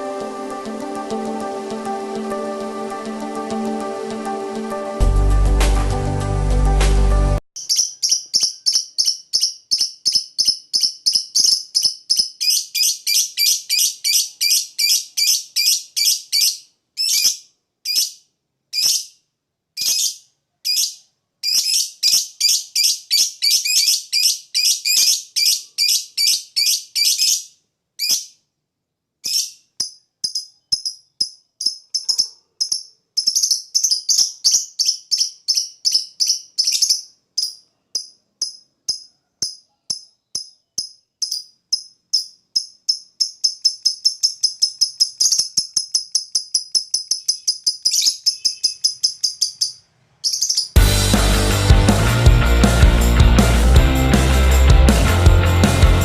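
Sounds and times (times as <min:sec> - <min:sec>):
lovebird chirping: 0:07.6 - 0:19.2, 0:19.8 - 0:28.4, 0:29.2 - 0:50.8.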